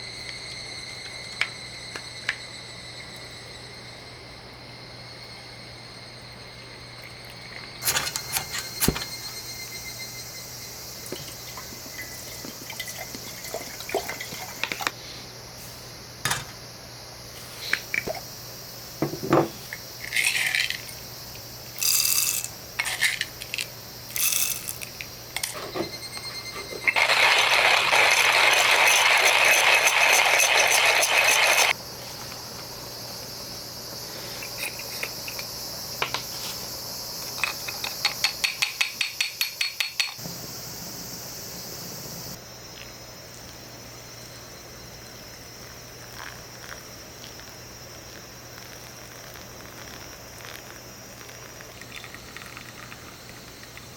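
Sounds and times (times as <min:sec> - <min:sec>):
hard objects clinking and scraping: 0:21.8 - 0:23.3, 0:24.2 - 0:24.9.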